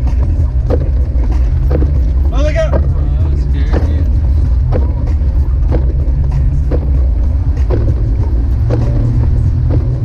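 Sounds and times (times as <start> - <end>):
engine and road noise rumble: 0.0 - 10.0.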